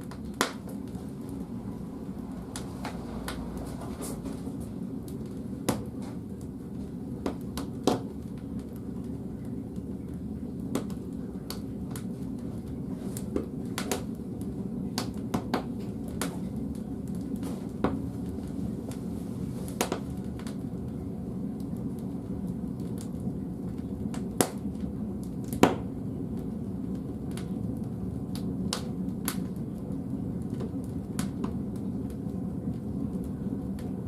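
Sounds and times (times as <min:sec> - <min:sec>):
burning wood crackling: 0:00.0 - 0:34.0
low rumble of fire: 0:00.0 - 0:34.0.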